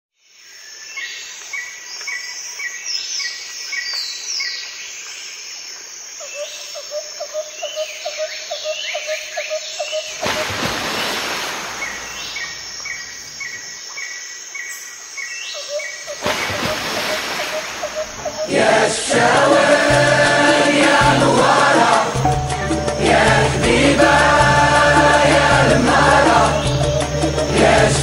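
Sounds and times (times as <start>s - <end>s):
falling whistled bird notes: 15.7s - 18.8s
pulsed low bird call: 16.1s - 28.0s.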